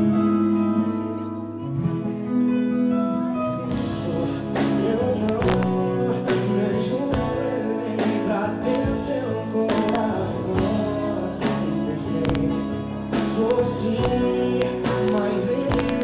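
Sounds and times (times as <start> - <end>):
guitar chords: 0.0 - 16.0
live band playing: 0.0 - 16.0
person singing: 3.6 - 16.0
drums steady beat: 3.7 - 16.0.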